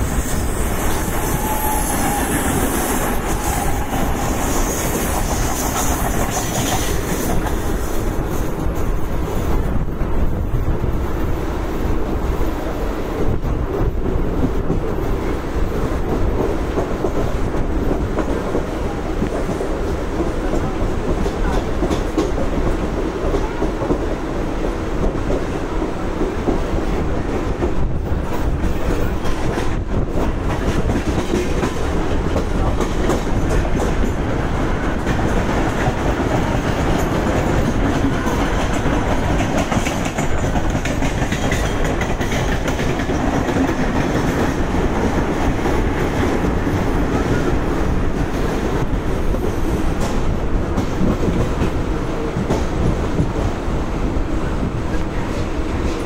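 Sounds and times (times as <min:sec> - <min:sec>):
train wheels on rails: 0:00.0 - 0:56.0
wheels clacking over rail joints: 0:27.7 - 0:53.4.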